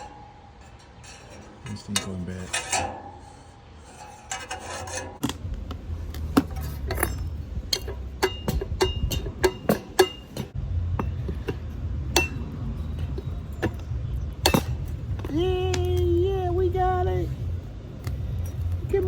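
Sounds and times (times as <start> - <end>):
steady low hum: 0.0 - 19.0
hand tools clinking and tapping: 4.3 - 16.8.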